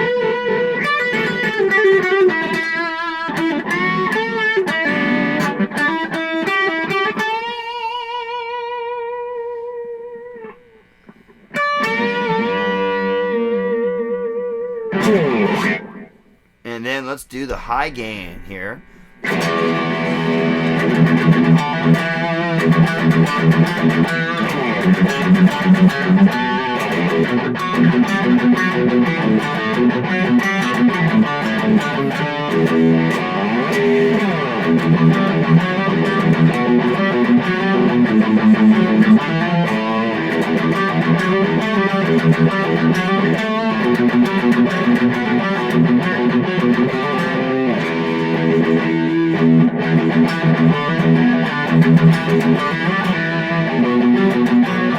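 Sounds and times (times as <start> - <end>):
distorted electric guitar: 18.3 - 54.9.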